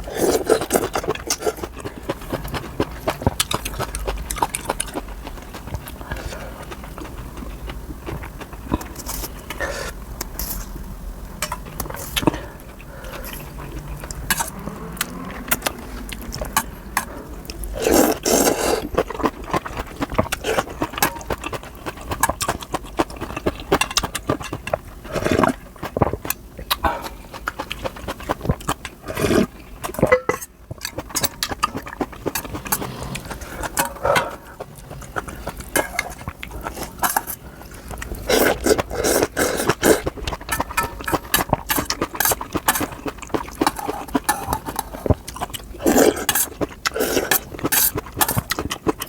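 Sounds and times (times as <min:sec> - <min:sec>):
noodles slurped and chewed: 0:00.0 - 0:10.9, 0:11.6 - 0:49.0
utensils clicking on bowl: 0:38.3 - 0:49.0.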